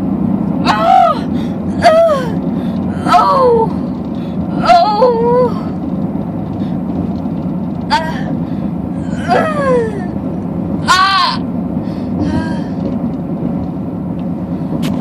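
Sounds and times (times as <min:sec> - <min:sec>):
car road rumble: 0:00.0 - 0:15.0
woman moaning in pain: 0:00.6 - 0:03.8, 0:04.5 - 0:05.8, 0:07.9 - 0:10.2, 0:10.9 - 0:11.4, 0:12.2 - 0:12.8.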